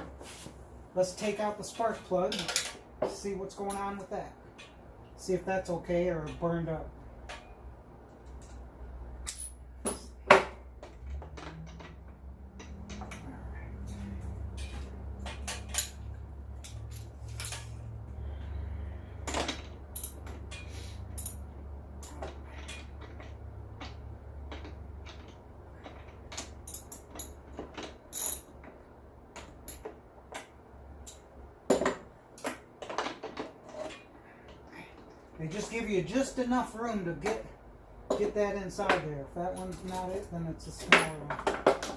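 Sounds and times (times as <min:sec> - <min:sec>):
low steady hum: 0:00.0 - 0:41.9
metal tools clinking: 0:01.7 - 0:05.2, 0:06.1 - 0:07.6, 0:08.2 - 0:18.4, 0:19.2 - 0:28.6, 0:38.1 - 0:41.9.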